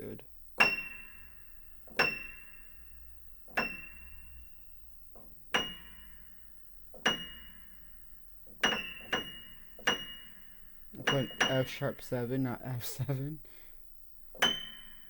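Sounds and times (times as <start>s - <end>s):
high piano note pinging: 0.0s - 2.9s, 3.5s - 4.6s, 8.6s - 12.8s.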